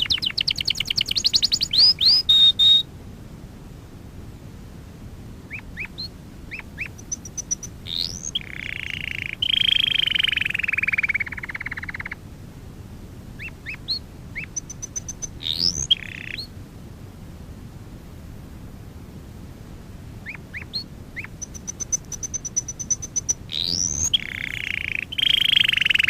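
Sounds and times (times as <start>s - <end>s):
canary chirping and trilling: 0.0s - 2.8s, 5.5s - 12.2s, 13.4s - 16.5s, 20.2s - 26.0s.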